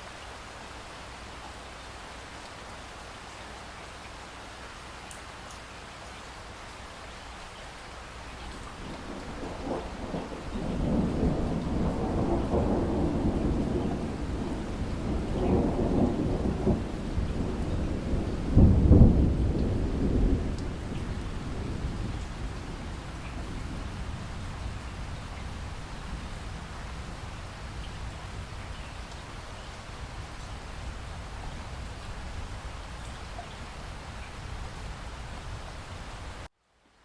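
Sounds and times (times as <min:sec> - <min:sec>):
steady rain: 0:00.0 - 0:37.0
rolling thunder: 0:08.5 - 0:35.9.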